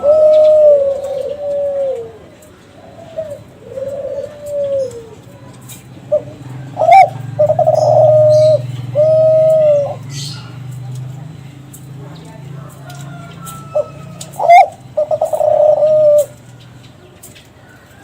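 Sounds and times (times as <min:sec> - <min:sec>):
dove cooing: 0:00.0 - 0:18.0.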